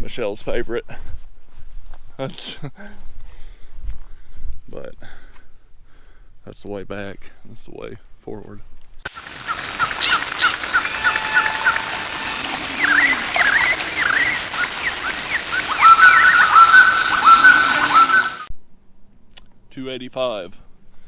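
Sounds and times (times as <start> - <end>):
birds chirping: 8.2 - 18.5
steady hiss: 9.0 - 18.2
bird whistling repeated notes: 9.4 - 18.5.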